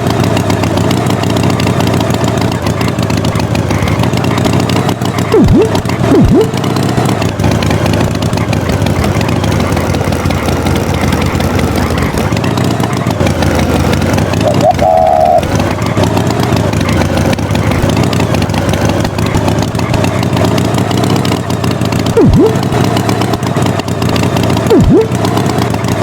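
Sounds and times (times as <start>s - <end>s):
tractor engine running: 0.0s - 26.0s
quick swooping tones: 5.3s - 6.6s, 22.2s - 22.6s, 24.7s - 25.2s.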